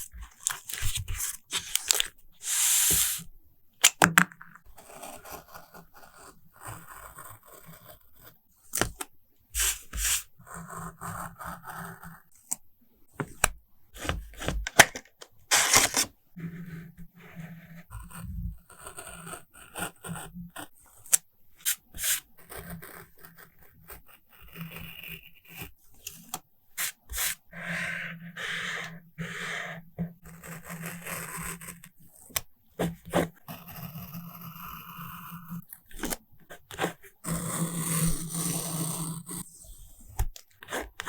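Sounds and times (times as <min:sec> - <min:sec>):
paper rubbing and scraping: 0:00.0 - 0:03.3, 0:09.6 - 0:10.4, 0:14.0 - 0:16.6, 0:21.6 - 0:22.3, 0:26.8 - 0:29.6.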